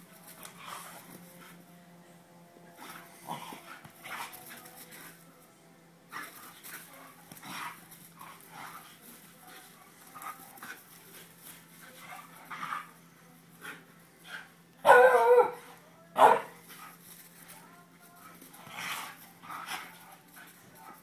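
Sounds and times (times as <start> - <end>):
dog barking loudly: 14.8 - 15.6, 16.2 - 16.5.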